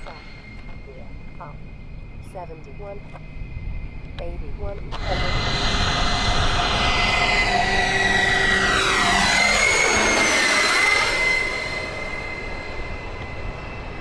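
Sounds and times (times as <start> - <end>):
model airplane engine passing: 4.9 - 14.0.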